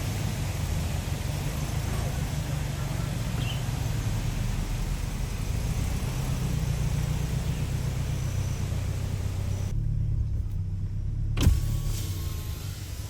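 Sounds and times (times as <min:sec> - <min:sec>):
car engine rumbling: 0:00.0 - 0:13.0
sharp thump: 0:11.4 - 0:12.1.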